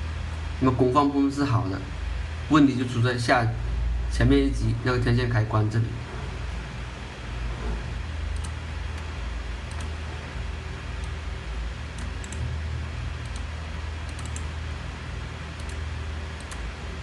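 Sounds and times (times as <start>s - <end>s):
low hum and hiss: 0.0s - 17.0s
computer clicks: 8.3s - 10.0s, 11.0s - 11.2s, 11.9s - 12.5s, 13.2s - 14.6s, 15.5s - 16.7s.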